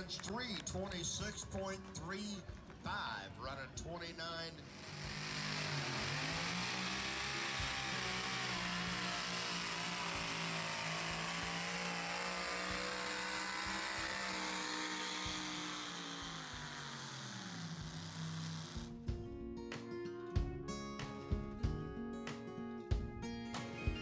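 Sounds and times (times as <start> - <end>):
pulling vehicle engine revving: 4.6 - 19.0.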